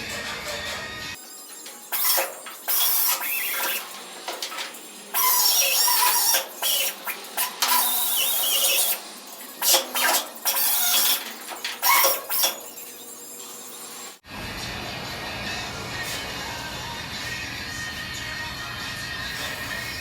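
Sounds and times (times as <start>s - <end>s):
grinder on sheet metal: 0.0s - 14.2s
squealing metal ring: 0.0s - 14.2s.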